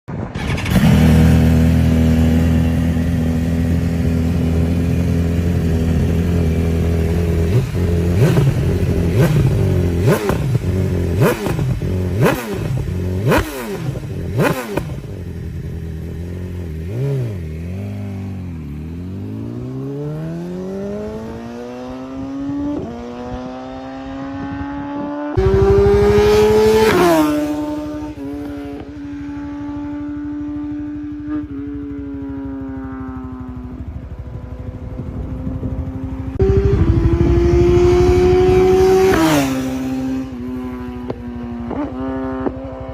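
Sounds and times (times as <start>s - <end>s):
motorcycle engine revving: 0.1s - 42.9s.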